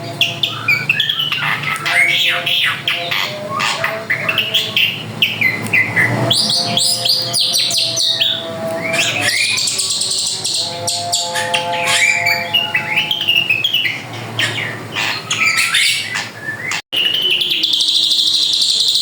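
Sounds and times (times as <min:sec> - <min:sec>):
bird singing chirps and whistles: 0:00.0 - 0:19.0.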